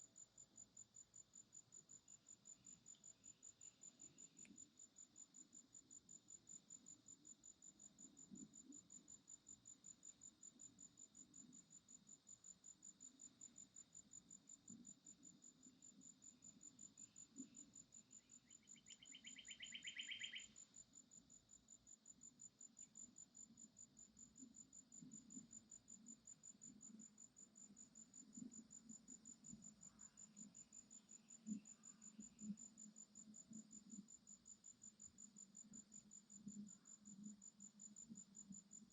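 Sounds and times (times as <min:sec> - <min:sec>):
insect chirping: 0:00.0 - 0:38.9.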